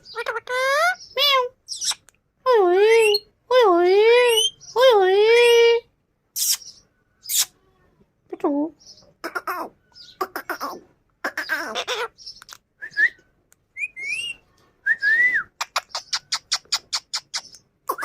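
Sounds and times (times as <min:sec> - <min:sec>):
parrot sharp chirps: 0:00.0 - 0:02.1, 0:06.4 - 0:07.5
parrot raspy calls: 0:09.2 - 0:12.6.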